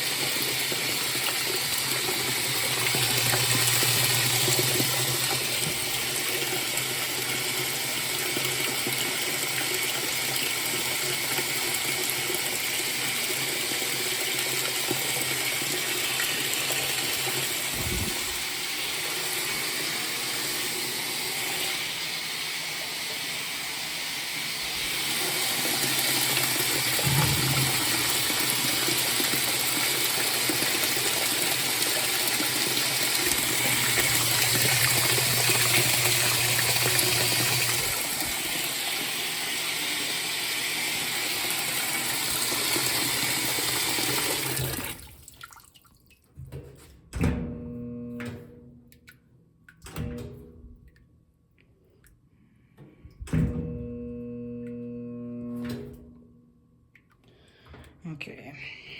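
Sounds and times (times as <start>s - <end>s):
water pouring into washing machine: 0.0s - 46.5s.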